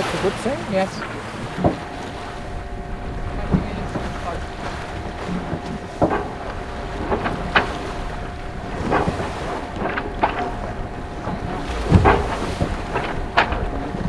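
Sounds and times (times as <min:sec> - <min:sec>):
water rushing along hull: 0:00.0 - 0:14.0
wind buffeting microphone: 0:00.0 - 0:14.0.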